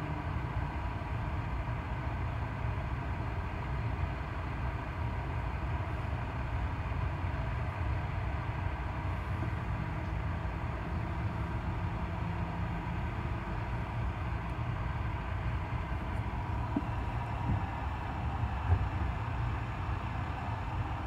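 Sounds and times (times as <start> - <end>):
train rumbling past: 13.5 - 21.0.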